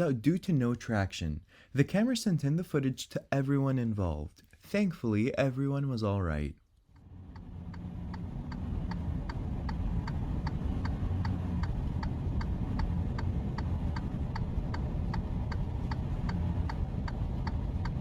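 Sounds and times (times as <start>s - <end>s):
engine and road rumble: 6.9s - 18.0s.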